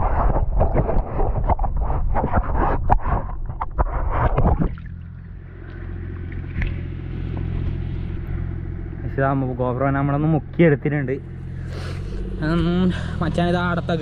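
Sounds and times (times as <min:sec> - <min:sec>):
water splashing and churning: 0:00.0 - 0:08.8
engine idling: 0:04.8 - 0:14.0.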